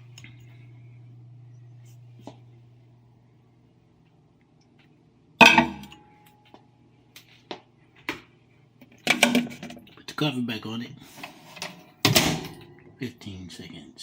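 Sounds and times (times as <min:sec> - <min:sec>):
dishware clatter: 0:05.4 - 0:06.1, 0:09.1 - 0:09.8
dishware clinking: 0:05.4 - 0:06.2.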